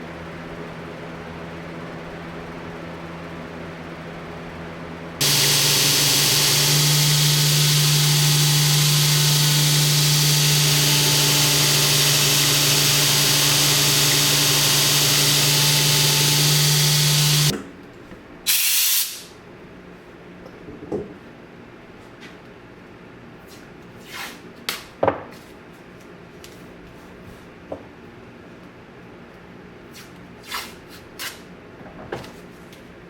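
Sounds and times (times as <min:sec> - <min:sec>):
power tool hissing: 0:05.2 - 0:17.5, 0:18.5 - 0:19.3
short sharp hiss: 0:18.5 - 0:19.3.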